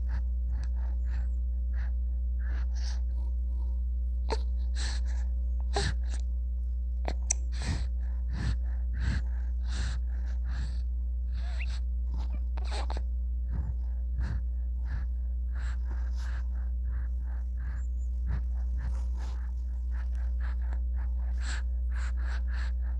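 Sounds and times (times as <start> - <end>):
low hum: 0.0 - 22.9
baby gasping and sniffing: 11.3 - 21.4.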